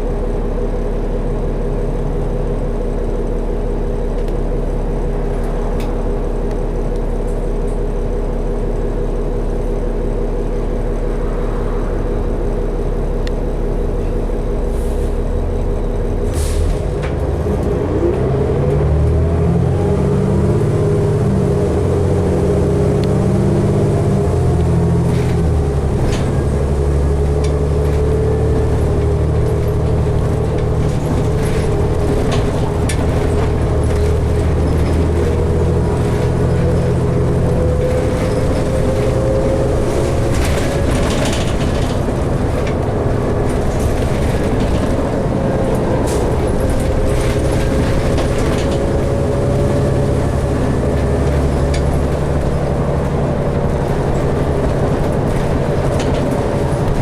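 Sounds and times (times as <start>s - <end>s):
bus engine drone: 0.0s - 57.0s
road noise: 0.0s - 57.0s
rattles and clicks from bus body: 4.1s - 8.4s, 14.0s - 19.2s, 23.0s - 57.0s
faint rising whine: 10.6s - 13.9s.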